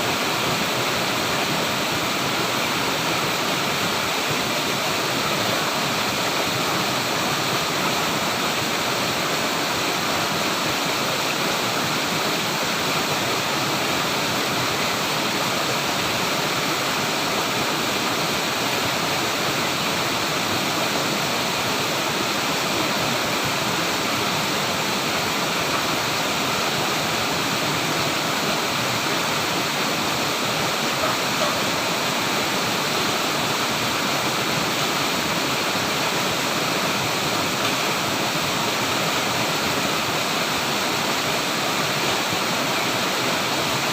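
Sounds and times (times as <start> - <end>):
flowing water: 0.0 - 43.9.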